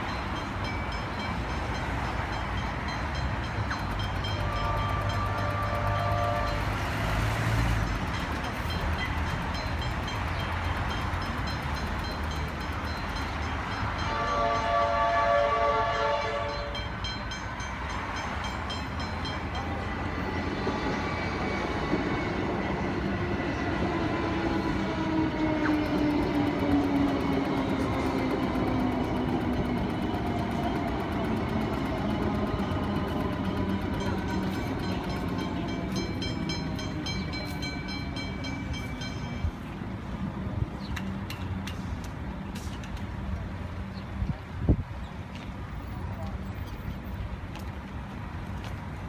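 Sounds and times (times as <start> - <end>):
crossing warning bells ringing: 0.0 - 40.3
electric train rumbling: 0.0 - 49.0
train whine rising in pitch: 19.0 - 39.4.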